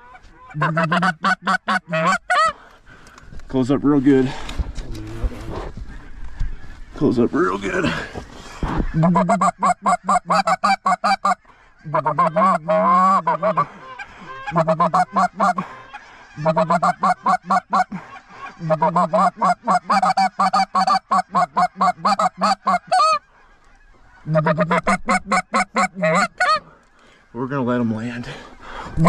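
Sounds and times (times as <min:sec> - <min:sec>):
goose call clucks: 0:00.0 - 0:02.5, 0:08.8 - 0:26.7
goose call honk: 0:00.0 - 0:02.5, 0:08.9 - 0:15.7, 0:16.4 - 0:26.6
goose call moan: 0:10.2 - 0:13.7.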